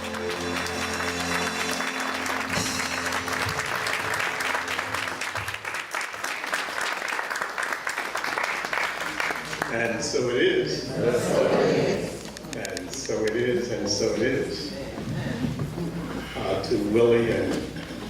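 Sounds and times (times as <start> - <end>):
held music chord: 0.0 - 5.4
audience applauding: 0.0 - 10.0.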